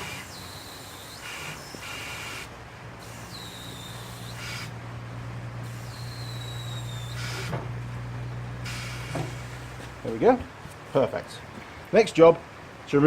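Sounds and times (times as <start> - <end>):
whistle-like tones: 0.0 - 2.5, 3.1 - 4.7, 5.7 - 7.5
air hissing: 0.0 - 4.8, 5.6 - 7.8, 8.6 - 10.0
low steady hum: 2.4 - 13.0.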